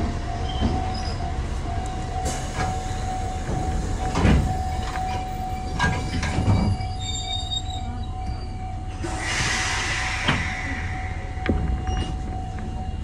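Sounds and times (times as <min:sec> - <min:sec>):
high wheel squeal: 0:04.6 - 0:12.5.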